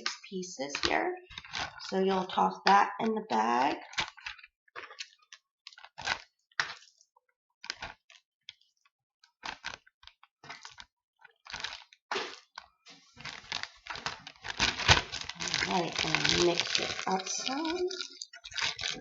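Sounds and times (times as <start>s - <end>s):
plastic bag crinkling: 0.0s - 2.4s, 3.7s - 7.0s, 9.4s - 9.8s, 11.5s - 19.0s.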